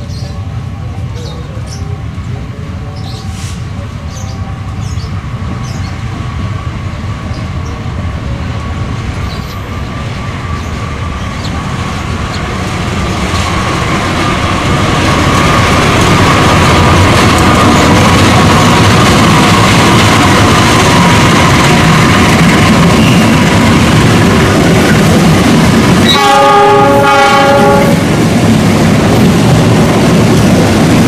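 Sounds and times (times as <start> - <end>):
train rumbling on rails: 0.0 - 31.0
high wheel squeal: 23.0 - 23.4.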